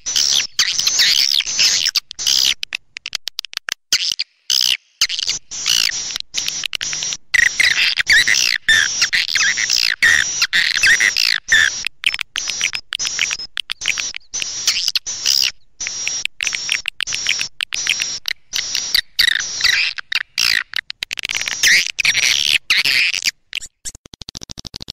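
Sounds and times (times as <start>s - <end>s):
swiftlets twittering: 5.3s - 22.4s.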